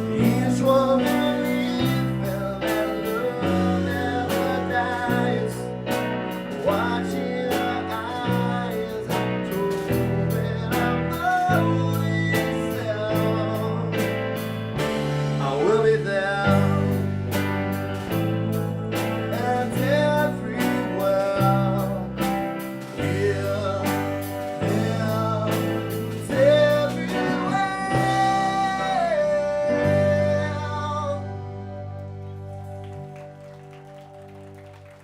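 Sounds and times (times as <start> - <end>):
steady drum beat: 0.0 - 29.0
person singing: 0.0 - 33.4
bass line: 0.0 - 35.0
guitar: 0.0 - 35.0.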